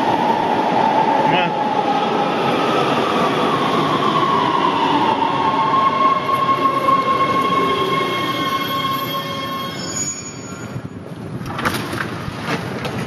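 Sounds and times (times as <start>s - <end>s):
high steel wheel squeal: 6.5s - 11.0s.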